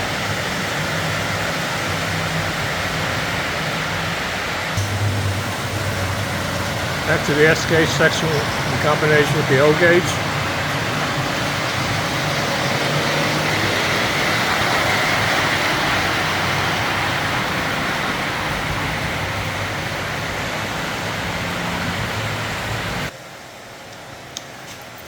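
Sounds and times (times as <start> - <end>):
low motor hum: 4.7 - 22.9
model trains rolling rumble: 4.8 - 23.1.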